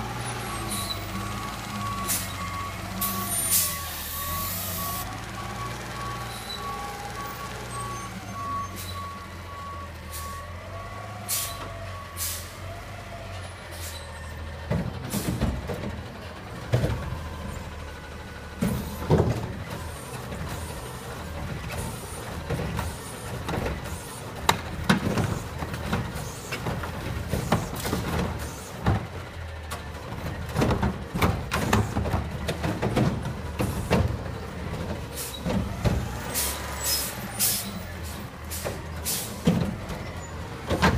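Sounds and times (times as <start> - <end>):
reversing alarm beeping: 0.4 - 12.5.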